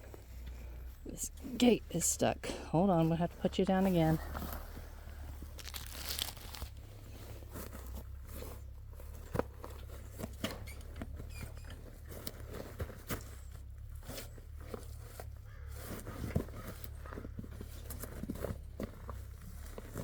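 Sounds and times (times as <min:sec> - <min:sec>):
muffled crackling: 0:00.0 - 0:10.3.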